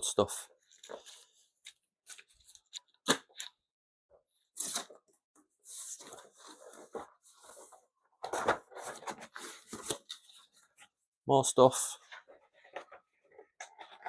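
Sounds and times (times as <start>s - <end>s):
cardboard and plastic rustling: 5.8s - 10.8s.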